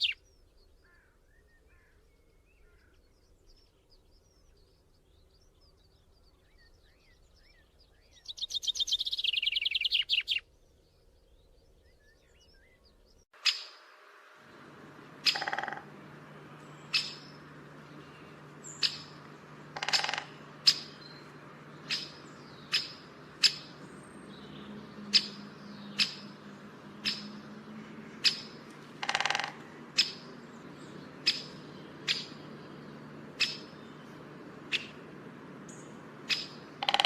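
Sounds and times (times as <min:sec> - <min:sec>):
chick harsh calls: 0:15.1 - 0:16.0, 0:16.8 - 0:23.8, 0:28.1 - 0:30.3.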